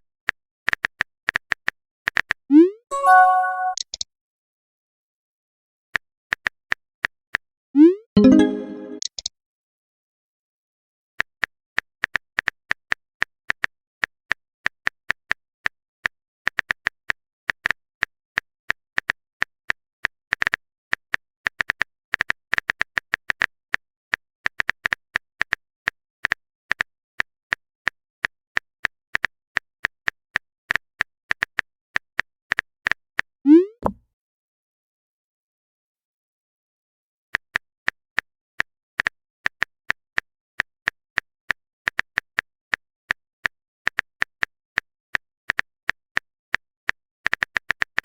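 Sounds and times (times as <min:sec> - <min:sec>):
rising notification bloop: 0:02.5 - 0:03.8, 0:07.8 - 0:09.0, 0:33.5 - 0:33.9.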